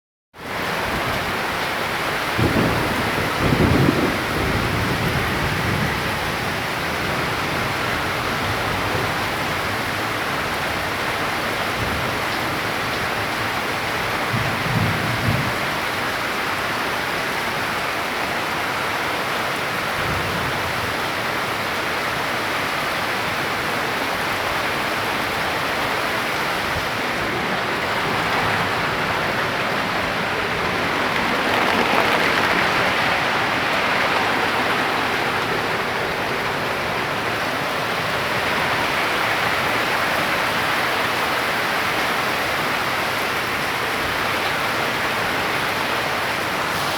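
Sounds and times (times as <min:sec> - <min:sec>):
heavy rain hissing: 0:22.5 - 0:46.9.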